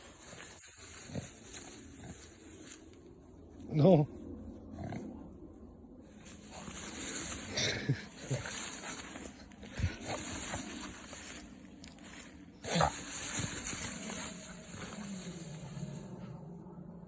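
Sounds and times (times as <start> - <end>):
dog grunting and snuffling: 0.0 - 2.8, 6.2 - 16.4.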